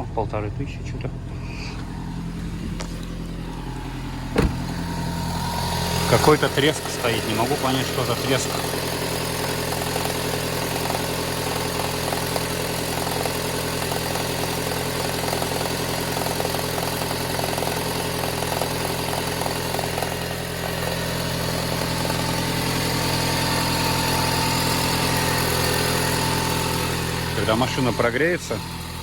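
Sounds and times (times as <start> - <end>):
car engine fast idle: 0.0 - 29.0
engine crackling: 0.0 - 29.0.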